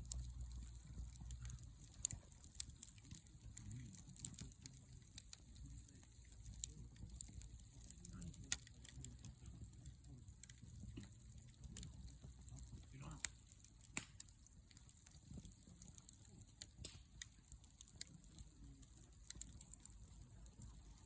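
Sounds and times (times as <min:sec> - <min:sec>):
low steady rumble: 0:00.0 - 0:16.3
campfire crackling and popping: 0:00.0 - 0:21.0.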